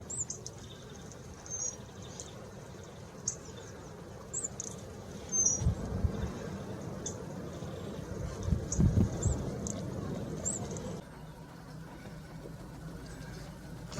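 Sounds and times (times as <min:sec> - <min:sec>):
low rumble: 0:05.5 - 0:13.9.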